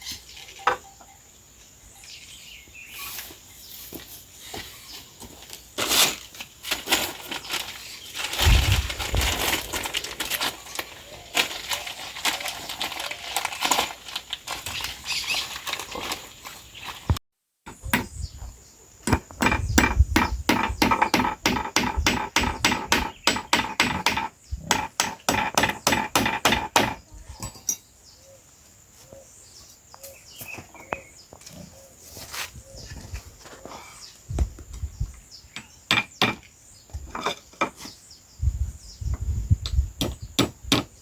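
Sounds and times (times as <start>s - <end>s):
crackling and rustling: 3.1s - 17.2s.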